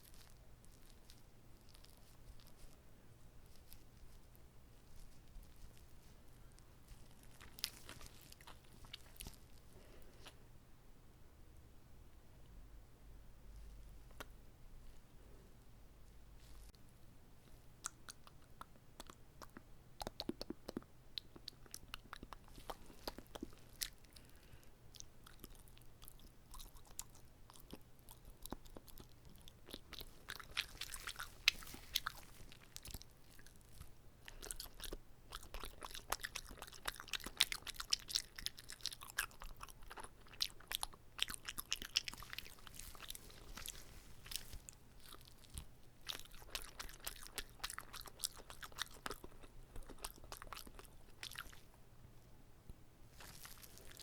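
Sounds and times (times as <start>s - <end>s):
chewing with wet mouth clicks: 0.0s - 2.8s, 3.4s - 10.4s, 17.5s - 51.8s, 53.2s - 54.0s.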